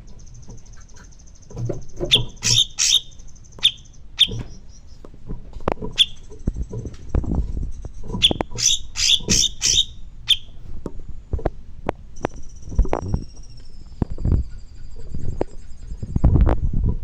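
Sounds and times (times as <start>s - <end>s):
songbird chip notes: 0.0s - 5.2s, 5.9s - 7.2s, 8.1s - 10.6s, 12.1s - 16.2s.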